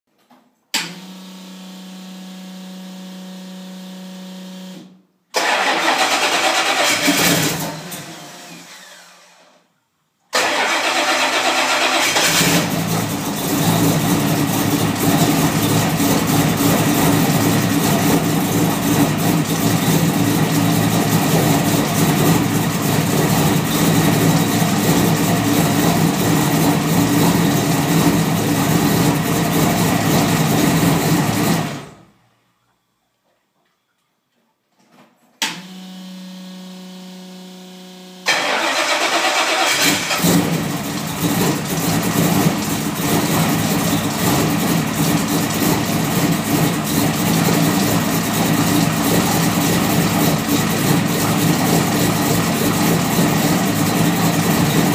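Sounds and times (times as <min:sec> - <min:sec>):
car engine cranking and running: 0:05.4 - 0:08.2, 0:10.3 - 0:32.1, 0:35.6 - 0:54.9.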